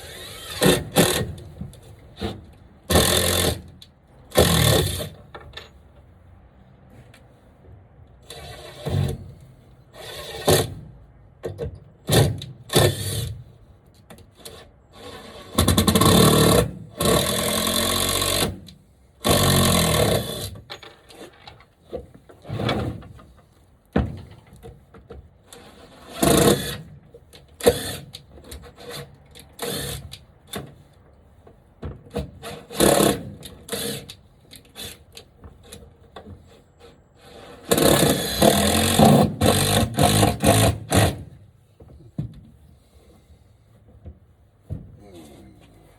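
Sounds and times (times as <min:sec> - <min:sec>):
power drill driving screws into wood: 0:00.0 - 0:01.3, 0:02.9 - 0:03.6, 0:04.3 - 0:05.2, 0:10.0 - 0:10.8, 0:12.1 - 0:13.3, 0:14.4 - 0:20.6, 0:25.6 - 0:26.9, 0:27.6 - 0:30.2, 0:32.4 - 0:35.0, 0:37.2 - 0:41.3.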